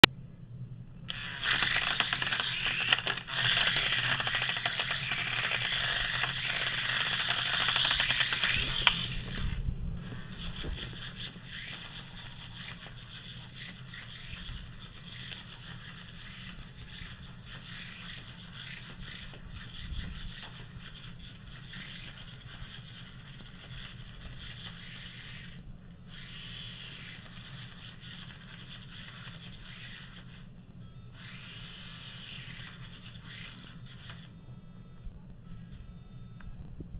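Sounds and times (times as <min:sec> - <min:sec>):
toy helicopter buzzing rattle: 0:01.1 - 0:30.4, 0:31.2 - 0:34.3.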